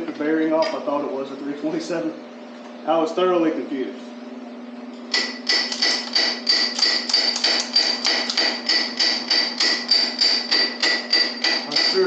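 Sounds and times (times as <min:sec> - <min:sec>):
hammer striking metal: 0:05.1 - 0:12.0.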